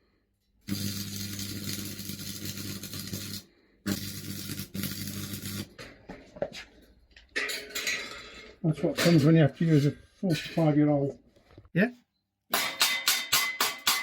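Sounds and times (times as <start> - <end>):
welder mains buzz: 0.6 - 5.8
welding arc crackling hiss: 0.7 - 5.8.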